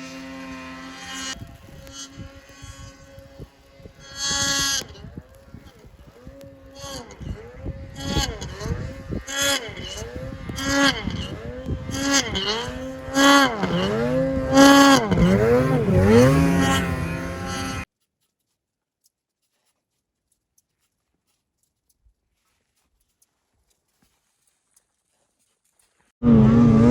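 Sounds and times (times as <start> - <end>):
snowmobile engine revving: 0.0 - 17.9, 26.2 - 26.9.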